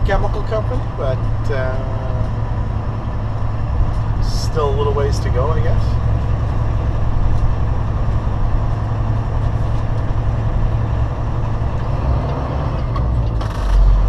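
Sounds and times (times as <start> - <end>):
road noise: 0.0 - 14.0
truck diesel engine drone: 0.0 - 14.0.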